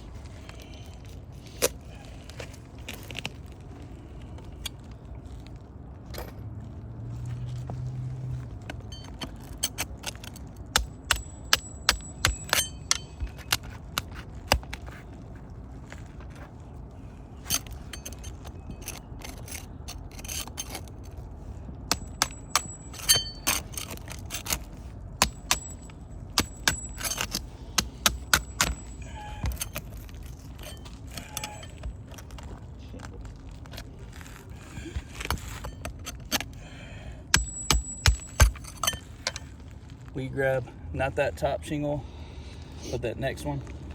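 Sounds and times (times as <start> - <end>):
hand tools tapping shingles: 8.6 - 15.0, 21.9 - 32.4, 37.3 - 39.5
short metallic ring: 8.9 - 9.8, 11.1 - 13.5, 21.9 - 24.0, 37.4 - 39.4.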